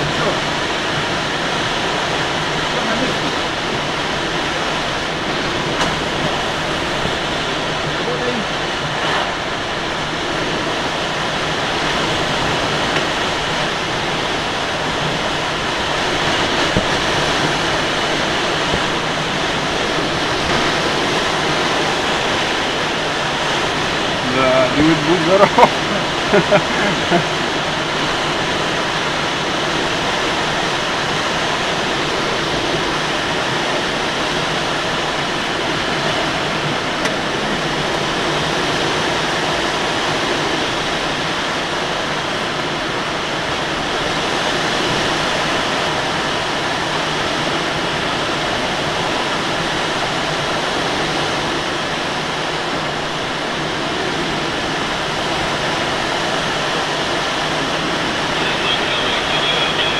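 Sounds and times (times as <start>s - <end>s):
airflow rushing in cockpit: 0.0s - 59.9s.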